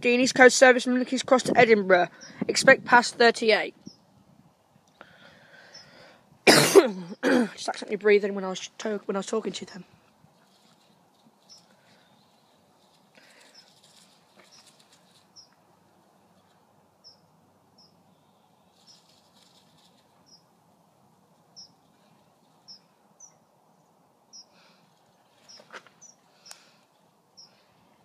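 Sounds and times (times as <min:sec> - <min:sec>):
small bird chirps: 0:05.6 - 0:06.0, 0:10.4 - 0:15.6, 0:16.2 - 0:20.6, 0:21.4 - 0:27.7.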